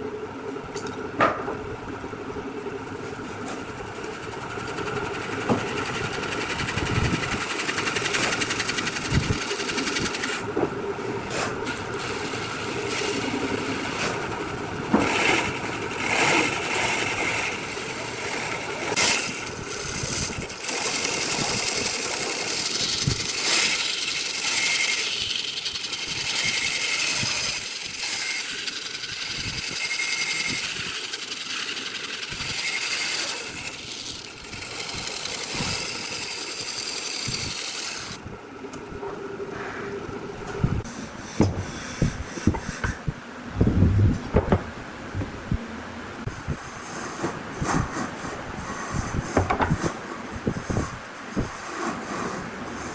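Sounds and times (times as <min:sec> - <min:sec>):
power machinery cutting wood: 0:03.2 - 0:10.6, 0:11.3 - 0:38.2.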